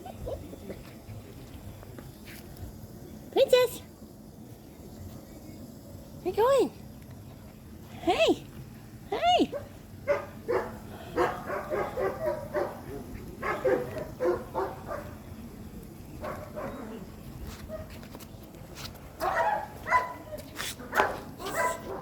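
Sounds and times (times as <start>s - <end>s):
young dog barking and yipping: 9.2s - 15.1s, 16.2s - 17.0s, 19.2s - 22.0s.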